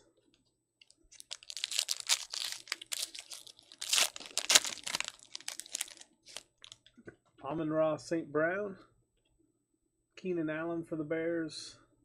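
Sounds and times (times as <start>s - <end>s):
wrapper crinkling and tearing: 1.1s - 6.9s.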